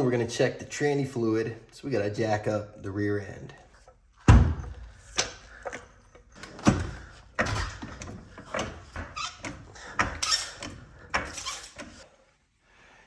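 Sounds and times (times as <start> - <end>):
car jack metal knocks and clanks: 4.2 - 12.0.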